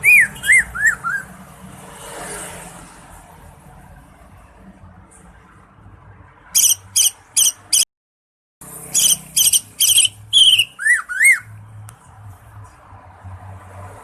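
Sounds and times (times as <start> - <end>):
bird whistled notes: 0.0 - 1.3, 6.6 - 7.8, 9.0 - 11.5
bird sharp high chirps: 0.0 - 1.4, 6.6 - 7.9, 8.9 - 11.6.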